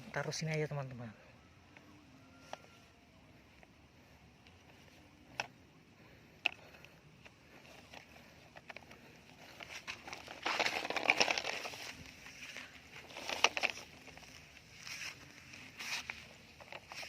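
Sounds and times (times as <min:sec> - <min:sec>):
small plastic clicks: 0:04.4 - 0:11.9
sand grating and crackling: 0:09.0 - 0:17.0.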